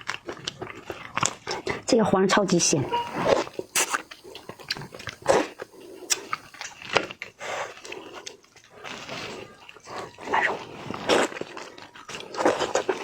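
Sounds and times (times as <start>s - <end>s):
chewing and lip-smacking: 0.0s - 13.0s.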